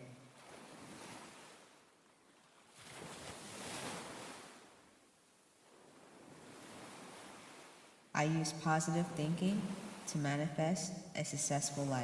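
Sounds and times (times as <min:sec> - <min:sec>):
ocean waves washing in: 0:02.6 - 0:04.9, 0:05.6 - 0:10.7.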